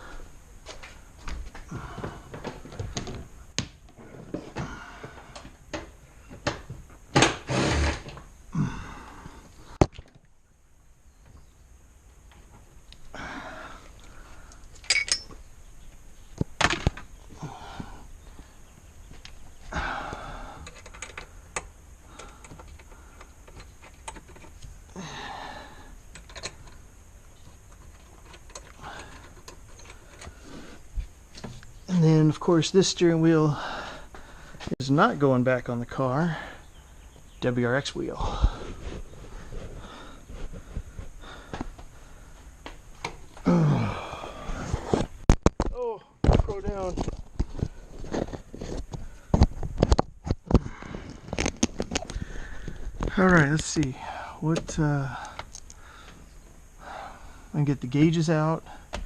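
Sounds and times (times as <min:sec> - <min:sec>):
hand tools clicking and rattling: 0:14.7 - 0:15.4, 0:27.7 - 0:30.3.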